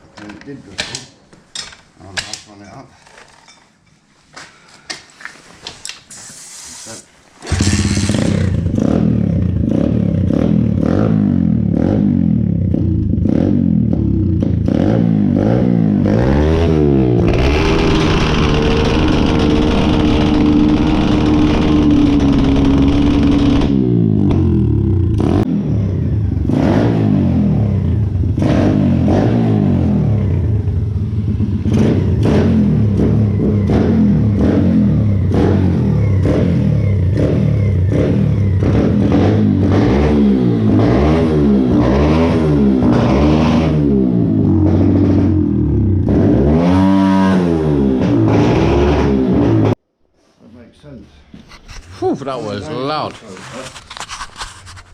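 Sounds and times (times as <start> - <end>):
motorbike engine revving: 7.4 - 49.8.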